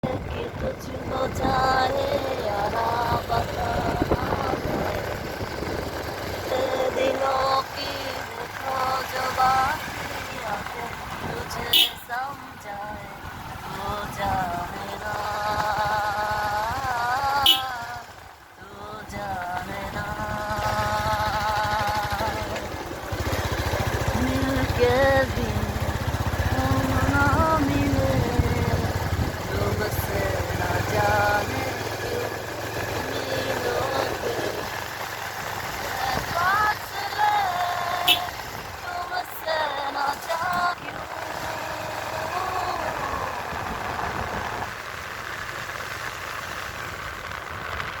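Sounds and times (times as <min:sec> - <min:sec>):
person singing long notes: 0:00.0 - 0:05.1, 0:06.4 - 0:22.7, 0:24.0 - 0:32.4, 0:33.0 - 0:34.7, 0:35.9 - 0:43.6
motorcycle engine rumbling: 0:00.0 - 0:48.0.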